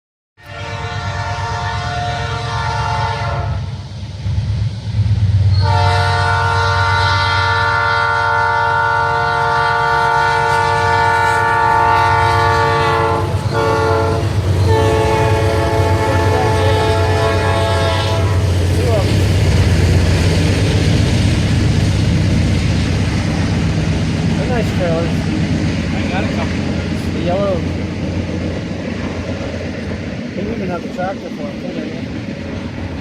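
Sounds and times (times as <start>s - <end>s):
locomotive air horn chord: 0.4s - 3.8s, 5.5s - 18.5s
diesel locomotive rumble: 0.4s - 33.0s.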